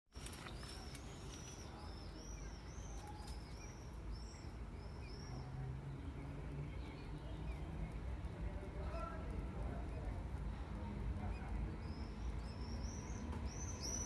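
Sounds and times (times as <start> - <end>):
small birds chirping: 0.2 - 14.0.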